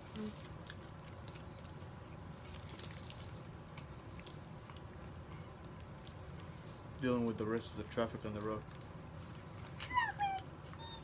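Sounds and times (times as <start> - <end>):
person chewing: 0.0 - 6.6
low room hum: 0.0 - 11.0.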